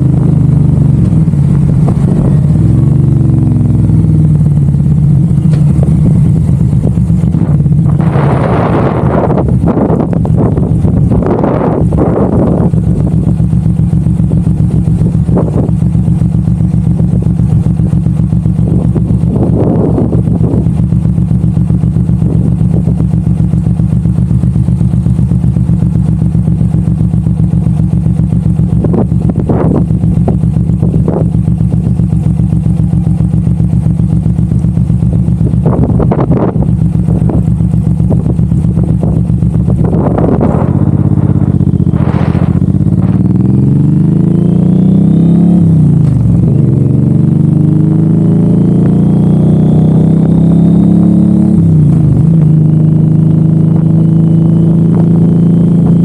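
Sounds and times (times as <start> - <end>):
motorcycle engine cruising: 0.0 - 56.0
wind noise rushes: 0.8 - 3.4, 5.3 - 23.6, 26.0 - 44.5.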